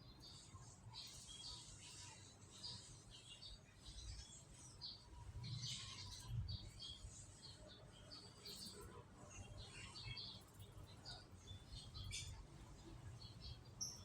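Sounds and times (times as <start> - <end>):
canaries chirping: 9.4 - 14.0.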